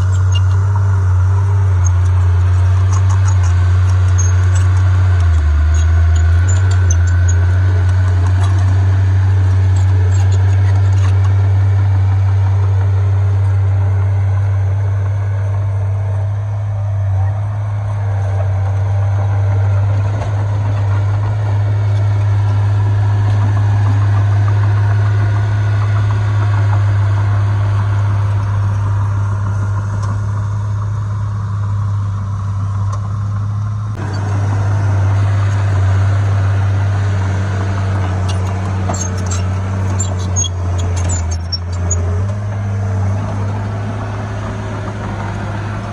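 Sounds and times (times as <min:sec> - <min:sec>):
mechanical noise: 0:00.0 - 0:13.7, 0:33.9 - 0:45.9
diesel engine droning: 0:00.0 - 0:45.9.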